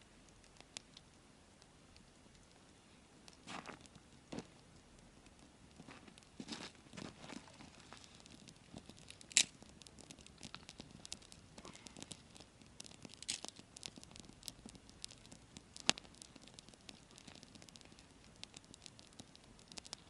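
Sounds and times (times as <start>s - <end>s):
campfire crackling: 0.0s - 20.0s.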